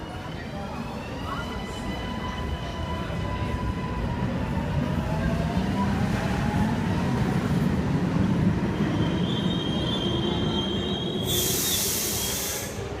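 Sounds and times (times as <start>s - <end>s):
metro train rumble: 0.0s - 13.0s
loud high hiss: 11.3s - 12.9s.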